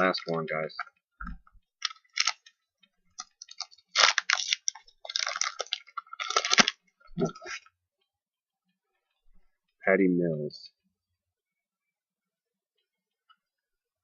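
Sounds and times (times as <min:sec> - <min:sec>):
foil wrapper tearing and crinkling: 0:01.8 - 0:02.5, 0:03.2 - 0:07.6.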